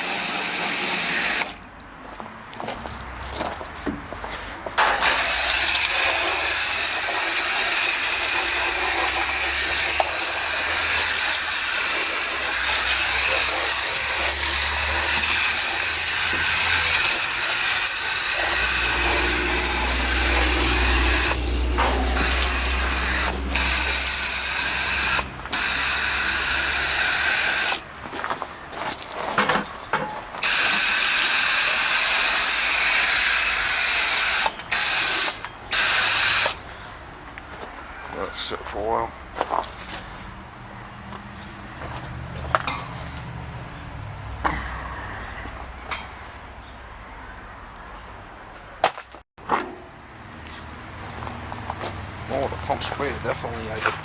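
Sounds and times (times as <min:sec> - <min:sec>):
spray hissing: 0:05.0 - 0:27.9, 0:30.4 - 0:36.6.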